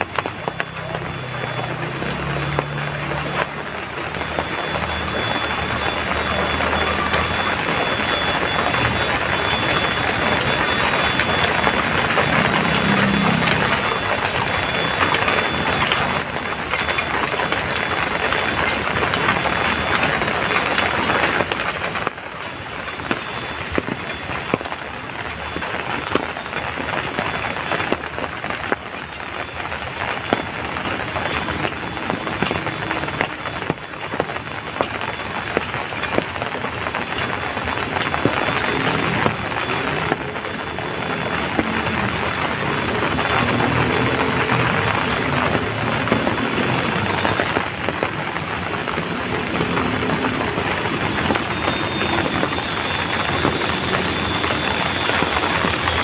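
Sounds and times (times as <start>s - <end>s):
heavy rain hissing: 0.0s - 56.0s
light rain pattering: 0.0s - 56.0s.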